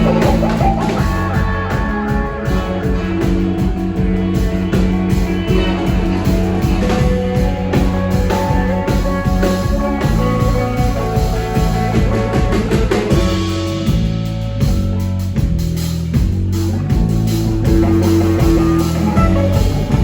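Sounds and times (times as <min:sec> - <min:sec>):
drum kit beat: 0:00.0 - 0:20.0
live rock band playing: 0:00.0 - 0:20.0.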